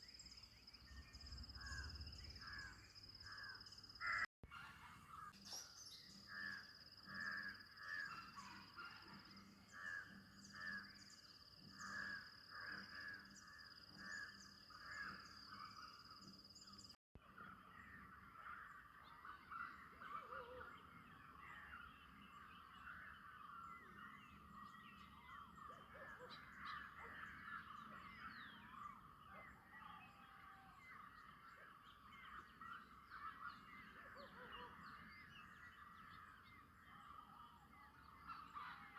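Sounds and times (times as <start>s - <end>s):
chorus of bird chirps: 0.0s - 38.9s
crows cawing: 1.6s - 4.3s, 6.2s - 15.4s.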